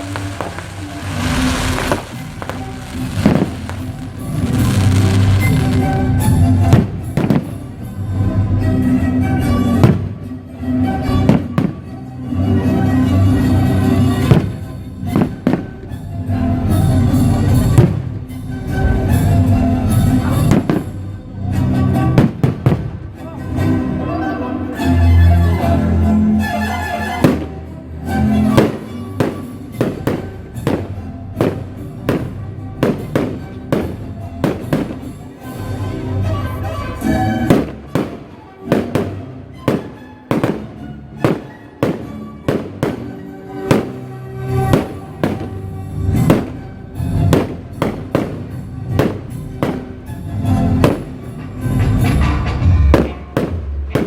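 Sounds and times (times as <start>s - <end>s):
fireworks bursting: 0.0s - 7.9s, 14.0s - 16.0s, 20.4s - 21.0s, 22.1s - 23.2s, 27.2s - 27.6s, 28.4s - 35.6s, 37.4s - 54.0s
music playing: 0.0s - 54.0s.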